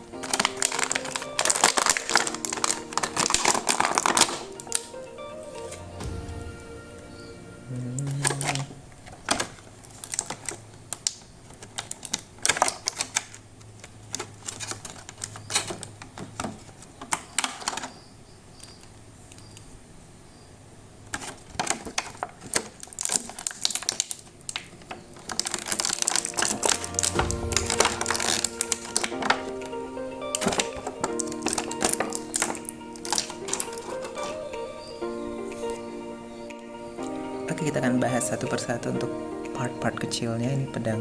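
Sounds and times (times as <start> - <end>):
plastic packaging clicking and crackling: 0.0 - 5.0, 8.2 - 19.7, 21.0 - 34.7.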